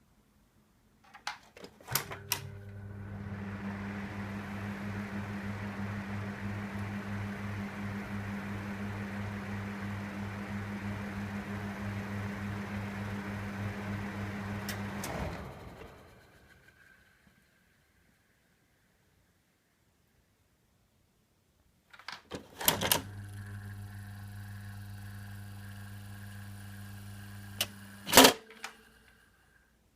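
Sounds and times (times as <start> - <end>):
fan motor humming: 1.9 - 17.0, 22.8 - 29.3.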